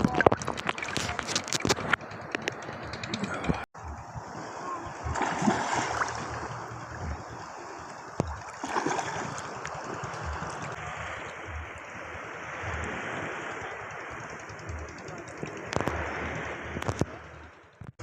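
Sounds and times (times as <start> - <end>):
small waves sloshing in shallows: 3.8 - 17.4.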